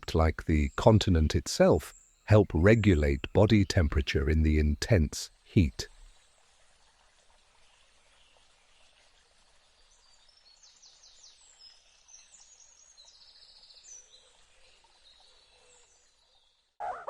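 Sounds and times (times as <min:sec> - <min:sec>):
small birds chirping: 0:00.0 - 0:06.2
low hiss: 0:00.0 - 0:12.9.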